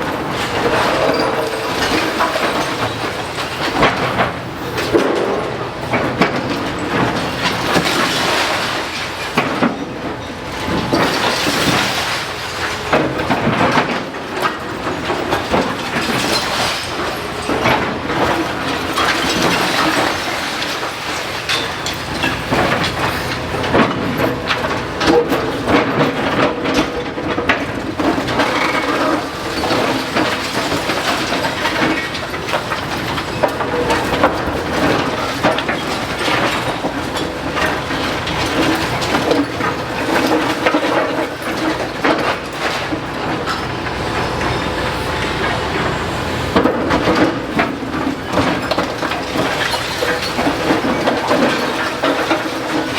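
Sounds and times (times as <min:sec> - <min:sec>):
falling rubble clattering: 0:00.0 - 0:52.9
excavator engine drone: 0:27.8 - 0:52.9.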